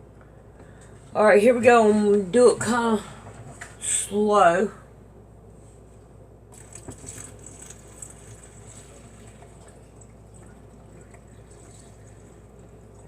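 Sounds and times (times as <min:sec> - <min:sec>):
water trickling and dripping: 0:06.6 - 0:13.0.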